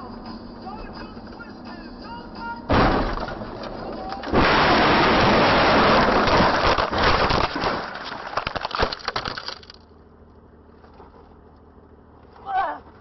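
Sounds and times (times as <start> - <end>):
debris clinking and rattling: 2.7 - 9.9
vehicle crash: 2.7 - 9.9.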